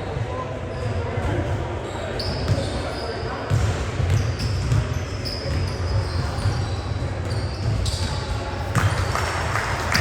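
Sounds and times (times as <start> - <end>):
basketball bouncing on gym floor: 3.5 - 9.3.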